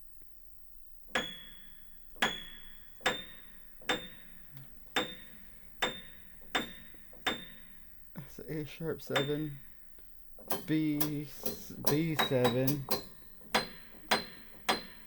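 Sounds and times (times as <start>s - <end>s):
high piano notes plinking: 1.1s - 15.0s.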